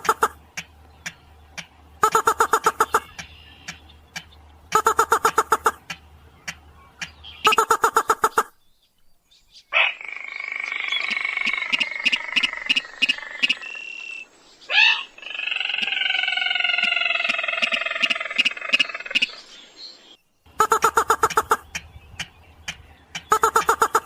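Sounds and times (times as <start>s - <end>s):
sharp clicks: 0.0s - 7.8s, 21.1s - 24.0s
rapid pulsed bird notes: 0.0s - 24.0s.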